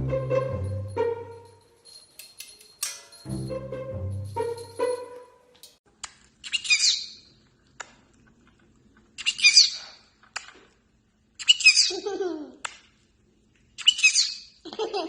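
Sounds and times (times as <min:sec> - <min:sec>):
parrot calling shrilly: 0:06.4 - 0:07.2.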